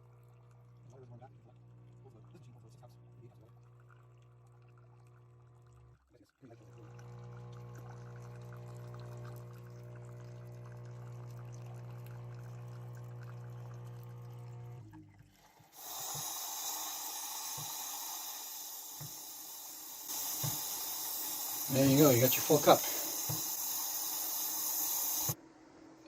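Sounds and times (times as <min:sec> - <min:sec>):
coffee maker pump humming: 0:00.0 - 0:25.4
coffee trickling into cup: 0:00.0 - 0:25.4
hiss of steam and air: 0:15.8 - 0:25.4.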